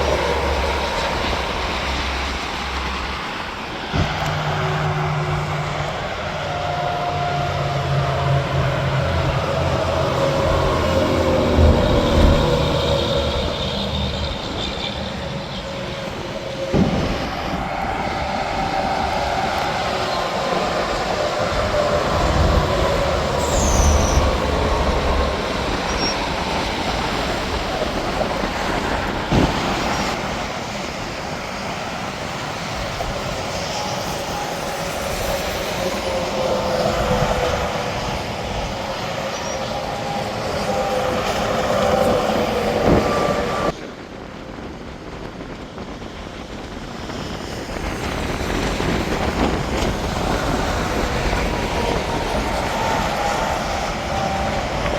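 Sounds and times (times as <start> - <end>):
highway traffic passing: 0.0 - 43.8.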